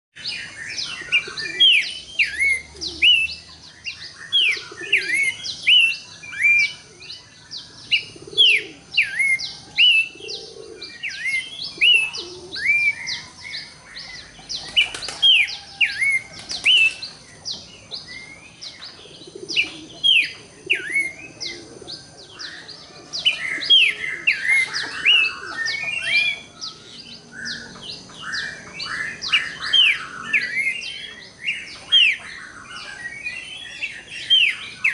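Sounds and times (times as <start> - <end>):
bird singing whistles: 0.7 - 6.8, 8.0 - 13.3.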